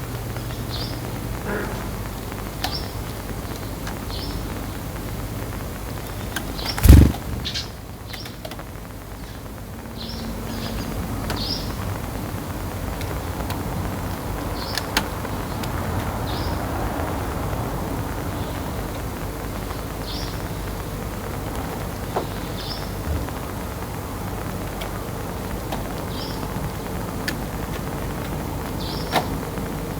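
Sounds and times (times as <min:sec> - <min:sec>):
sparrow chirping: 0:06.6 - 0:07.8
sharp clicks: 0:06.7 - 0:07.7.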